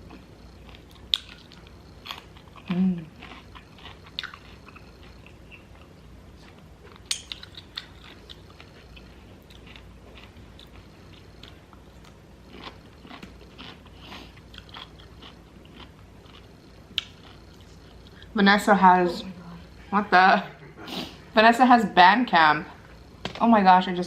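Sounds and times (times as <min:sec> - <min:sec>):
crunchy chewing: 0:00.0 - 0:18.4.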